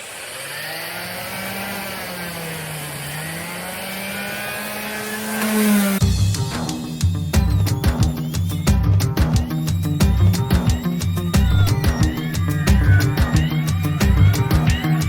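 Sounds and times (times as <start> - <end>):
power tool motor humming: 0.0 - 6.0
music: 6.0 - 15.0.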